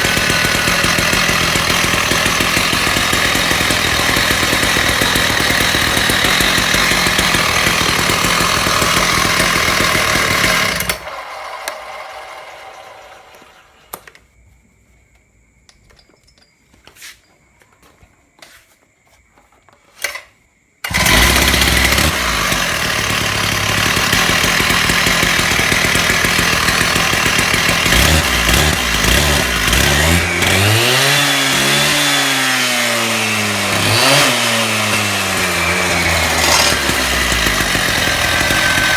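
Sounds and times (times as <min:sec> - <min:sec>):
concrete saw engine running: 0:00.0 - 0:14.1, 0:20.8 - 0:38.9
saw clicks: 0:00.0 - 0:14.2, 0:33.8 - 0:38.9.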